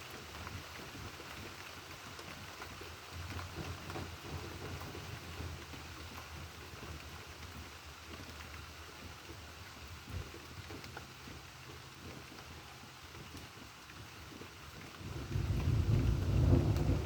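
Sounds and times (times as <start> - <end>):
steady rain falling: 0.0 - 17.0
low thunder rumble: 15.0 - 17.0.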